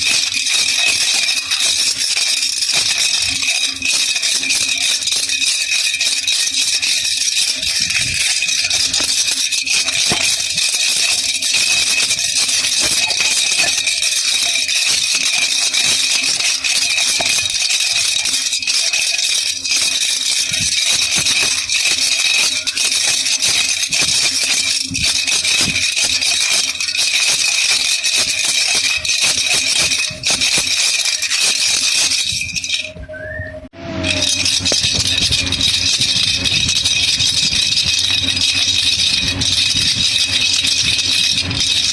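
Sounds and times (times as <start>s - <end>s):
baby rattle shaken: 0.0s - 33.4s, 34.0s - 41.9s.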